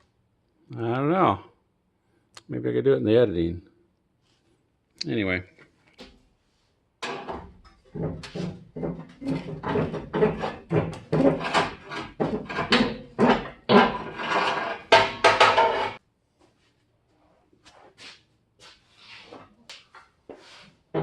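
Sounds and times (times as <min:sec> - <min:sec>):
rapid irregular knocking and clattering: 0:07.0 - 0:16.0.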